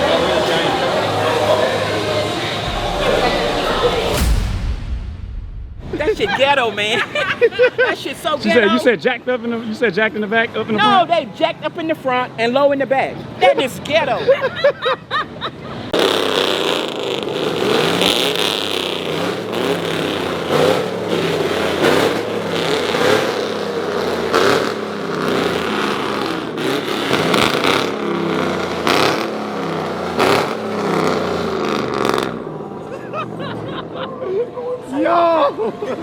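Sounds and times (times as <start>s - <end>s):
vehicle engines revving: 0.0s - 4.6s, 15.2s - 34.9s.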